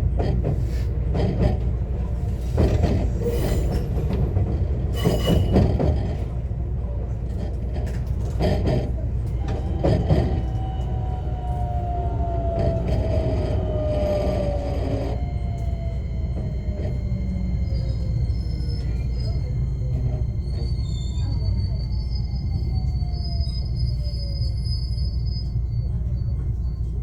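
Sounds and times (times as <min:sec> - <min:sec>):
train rumbling: 0:00.0 - 0:27.0
traction motor whine: 0:08.4 - 0:24.4.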